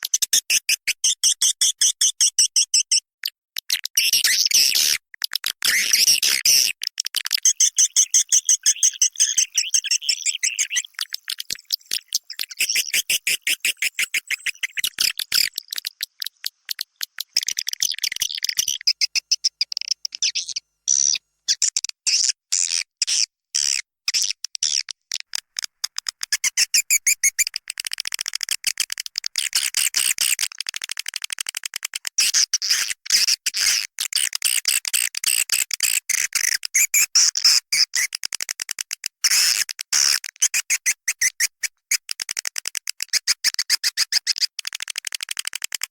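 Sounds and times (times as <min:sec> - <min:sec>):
swiftlets chirping and trilling: 0:05.8 - 0:21.2.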